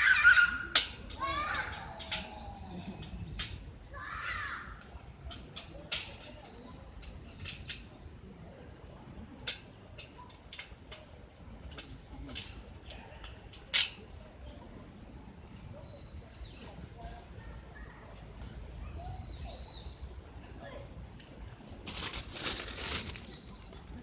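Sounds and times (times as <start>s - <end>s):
wood fire crackling: 21.8s - 24.0s.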